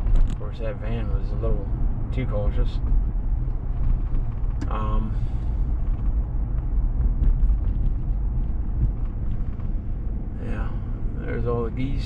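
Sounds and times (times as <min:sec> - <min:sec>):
road and engine rumble in cab: 0:00.0 - 0:12.0.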